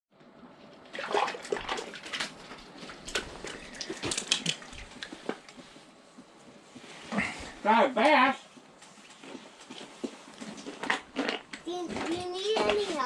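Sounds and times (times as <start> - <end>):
water splashing and sloshing: 0.6 - 6.0.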